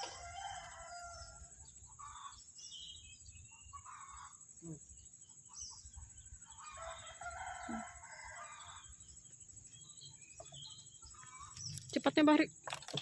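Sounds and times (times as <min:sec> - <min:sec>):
faint rooster crowing: 0:00.0 - 0:02.4, 0:06.5 - 0:09.0.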